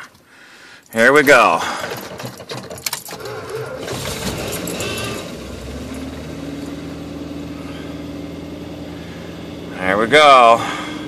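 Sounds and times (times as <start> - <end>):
engine cranking by starter: 1.3 - 9.7
engine idling: 3.1 - 11.0.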